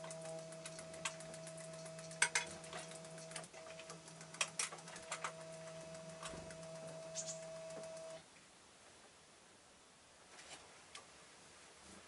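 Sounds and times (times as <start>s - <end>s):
bird tapping on perch and feeder: 0.0s - 8.1s
faint steady hum: 0.0s - 12.0s.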